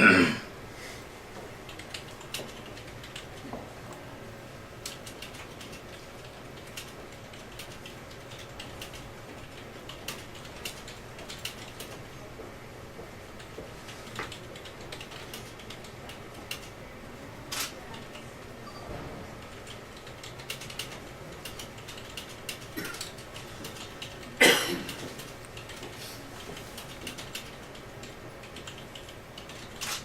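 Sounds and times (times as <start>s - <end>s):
low hum of office room tone: 0.0s - 30.0s.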